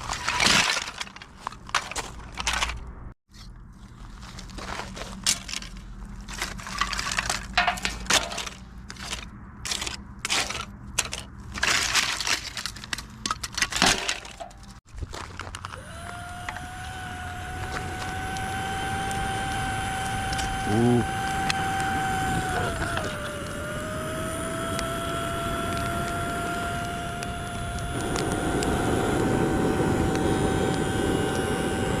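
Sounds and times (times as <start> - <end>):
scraping and crackling strokes: 0.0 - 32.0
small electric motor whine: 15.4 - 32.0.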